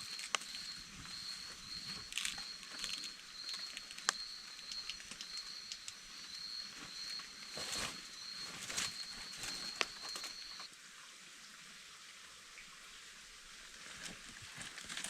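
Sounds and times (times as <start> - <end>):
high insect drone: 0.0 - 10.7
small clicks and crackles: 0.0 - 10.7, 13.8 - 15.0.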